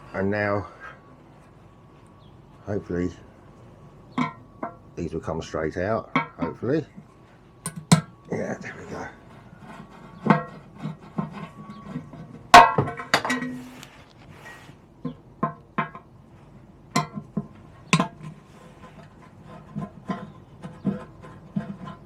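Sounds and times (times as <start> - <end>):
screwdriver clinking on metal: 7.7 - 8.1.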